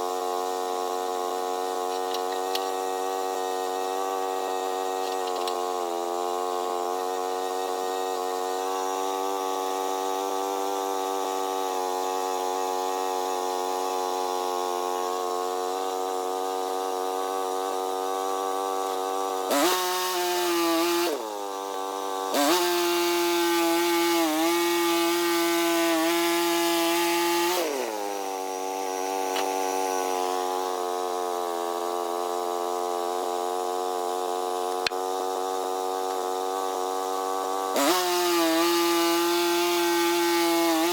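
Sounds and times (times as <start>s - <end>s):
gas engine idling and revving: 16.9s - 40.9s.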